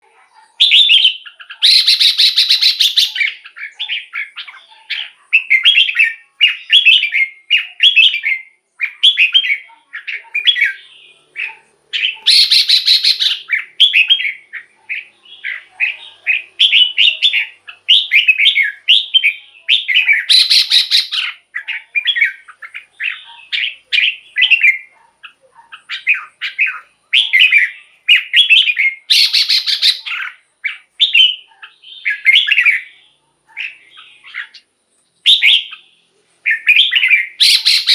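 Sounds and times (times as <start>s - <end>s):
bird whistling short phrases: 0.6s - 3.3s, 12.2s - 14.1s, 17.9s - 21.3s, 28.1s - 30.2s, 36.5s - 37.9s.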